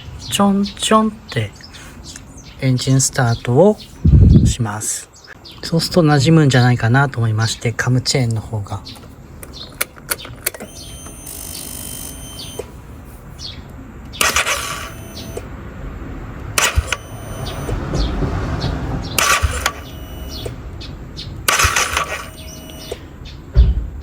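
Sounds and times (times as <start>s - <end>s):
motorcycle electric starter cranking: 9.4s - 12.7s, 14.1s - 15.5s, 16.5s - 18.1s, 19.0s - 20.6s, 21.4s - 23.1s.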